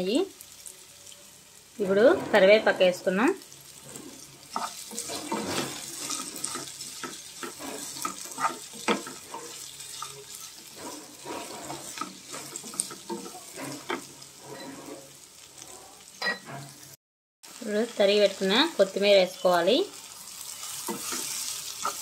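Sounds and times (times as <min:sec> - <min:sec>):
vegetables sizzling in oil: 0:00.0 - 0:22.0
spatula scraping and knocking pan: 0:01.8 - 0:16.9, 0:20.7 - 0:22.0.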